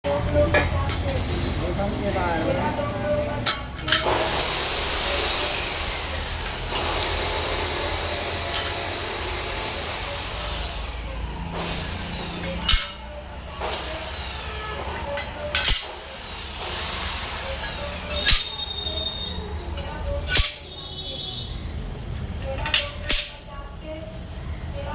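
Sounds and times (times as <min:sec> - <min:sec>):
power tool whining: 0:03.5 - 0:19.4
loud hiss: 0:03.9 - 0:19.5.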